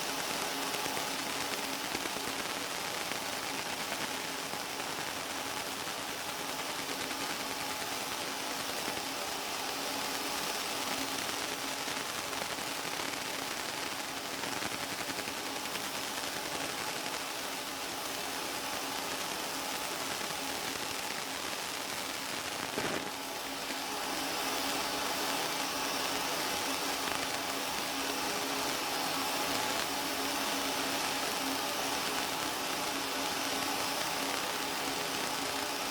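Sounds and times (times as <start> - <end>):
laser engraver hiss: 0.0 - 35.9.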